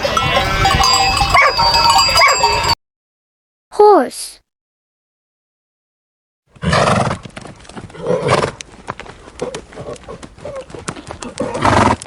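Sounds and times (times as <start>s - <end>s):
hooves clopping on hard ground: 6.6s - 12.0s
horse calling: 7.9s - 12.0s.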